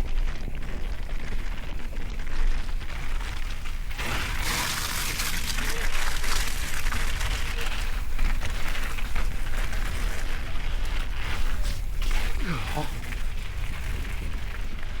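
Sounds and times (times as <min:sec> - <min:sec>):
wind rumble on microphone: 0:00.0 - 0:15.0
wet tyre hiss: 0:04.0 - 0:05.6.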